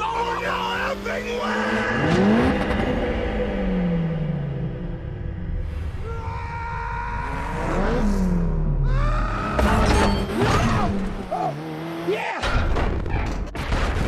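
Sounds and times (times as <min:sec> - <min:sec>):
car engine: 0:00.0 - 0:06.1, 0:06.7 - 0:13.5
car crash with shattering: 0:12.4 - 0:14.0.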